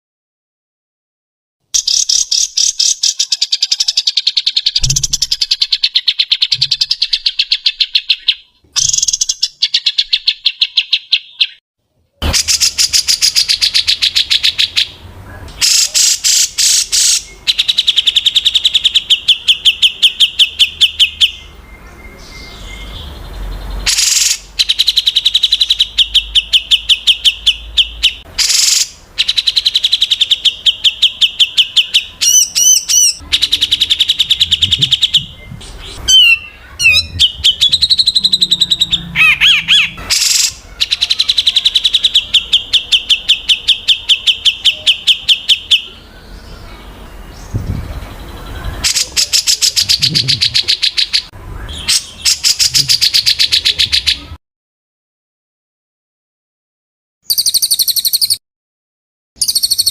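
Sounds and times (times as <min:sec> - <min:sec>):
songbird rapid high notes: 0:23.8 - 0:46.0.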